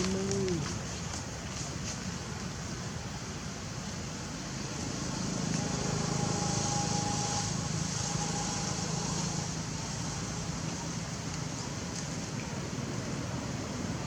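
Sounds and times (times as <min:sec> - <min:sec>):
high hiss: 0:03.6 - 0:12.3
low motor hum: 0:04.9 - 0:11.7.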